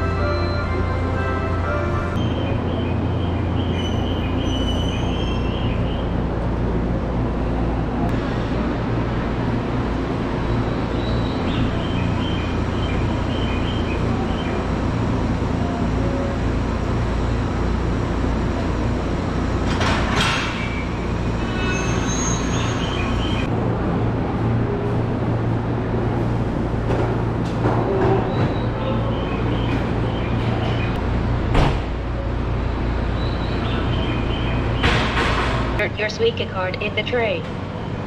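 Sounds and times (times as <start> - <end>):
brake squeals: 0.0 - 6.0, 20.5 - 23.5
train low hum: 0.0 - 38.0.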